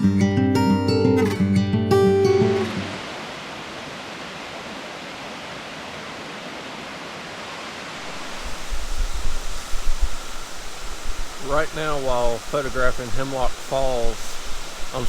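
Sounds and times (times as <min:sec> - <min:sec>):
acoustic guitar music: 0:00.0 - 0:03.0
waterfall rushing: 0:02.0 - 0:15.0.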